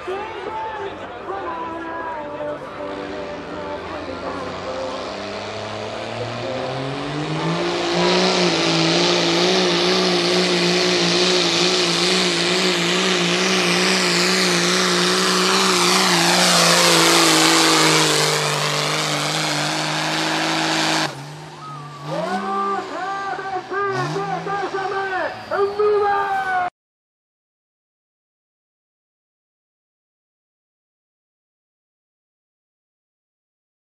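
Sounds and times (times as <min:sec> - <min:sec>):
pickup truck engine at full throttle: 0:00.0 - 0:26.0.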